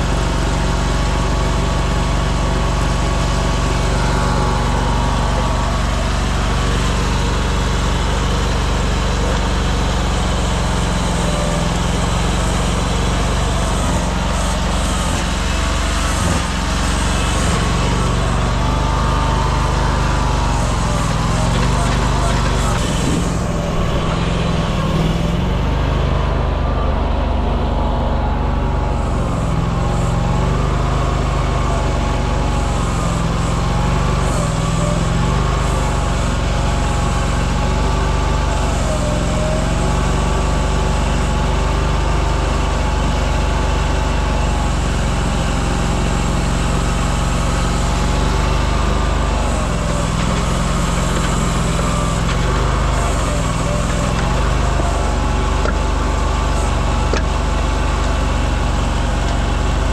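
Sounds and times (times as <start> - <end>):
vehicle engine droning: 0.0 - 59.9.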